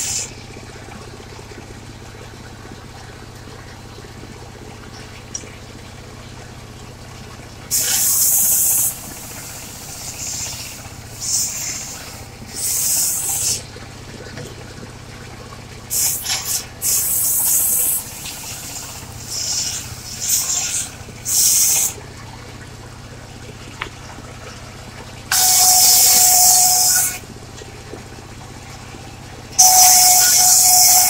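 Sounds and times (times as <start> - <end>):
sawmill engine running: 7.6 - 14.0, 25.3 - 31.0.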